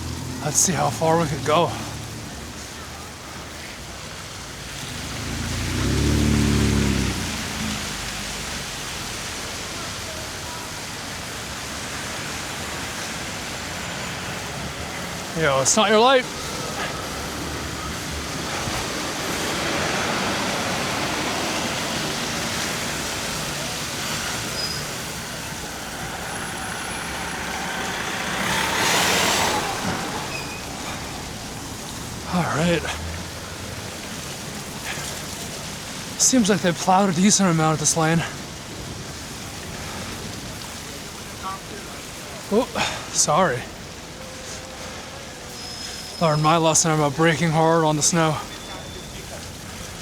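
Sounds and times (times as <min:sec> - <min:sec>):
motor vehicle passing: 0:00.0 - 0:03.0, 0:04.2 - 0:10.1, 0:11.0 - 0:41.1
tyre hiss on road: 0:00.0 - 0:50.0.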